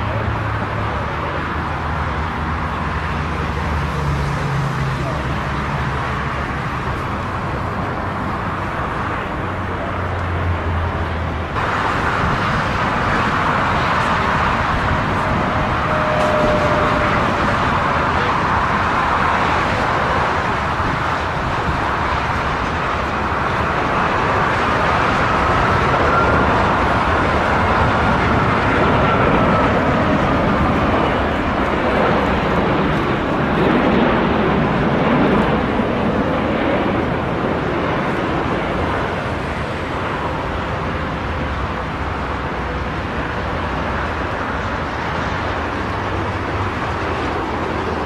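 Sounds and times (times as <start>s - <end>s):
jet engines roaring: 0.0s - 48.0s
faint high whine: 13.2s - 18.9s.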